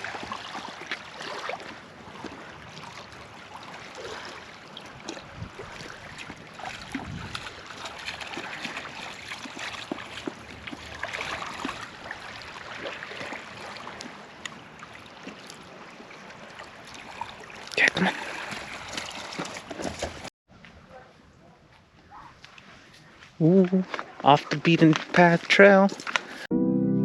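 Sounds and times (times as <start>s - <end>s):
lake water lapping: 0.0s - 20.3s.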